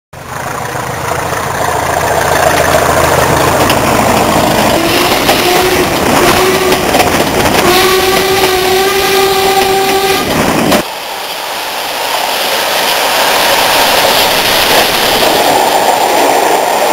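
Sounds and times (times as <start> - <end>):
diesel locomotive engine running: 0.2 - 16.9
locomotive horn blasts: 4.8 - 6.9, 7.6 - 10.4.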